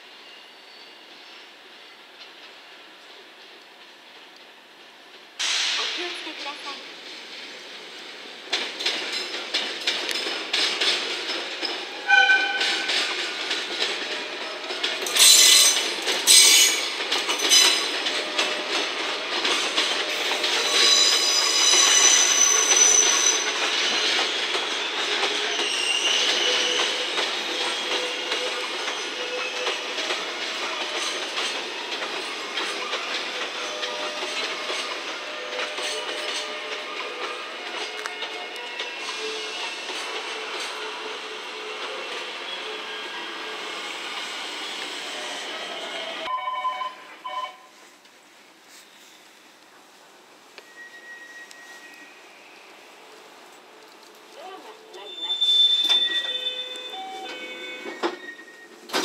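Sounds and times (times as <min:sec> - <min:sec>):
train wheels clicking over rail joints: 0:08.4 - 0:42.4
high flange squeal: 0:20.2 - 0:30.0, 0:50.6 - 0:52.9, 0:55.0 - 0:58.8
brief high tone: 0:46.3 - 0:47.7
faint wheel squeal: 0:50.6 - 0:52.7, 0:55.0 - 0:58.7.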